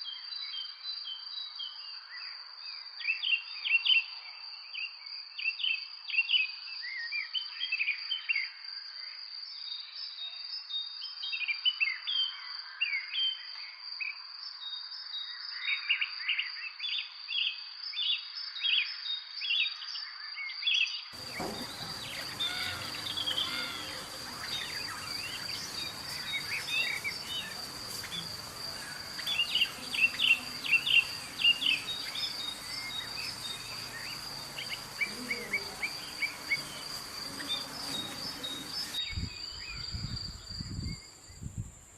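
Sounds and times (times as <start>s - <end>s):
high-pitched insect drone: 21.2s - 39.1s
background hiss: 21.2s - 41.9s
small birds chirping: 21.2s - 41.9s.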